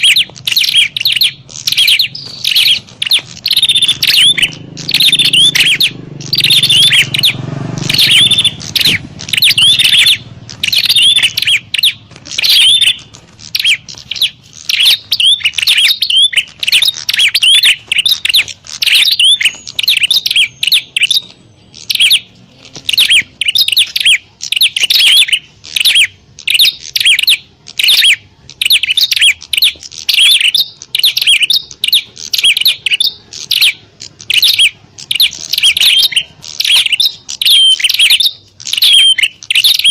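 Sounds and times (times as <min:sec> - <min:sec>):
birds chirping rapidly: 0:00.0 - 0:39.9.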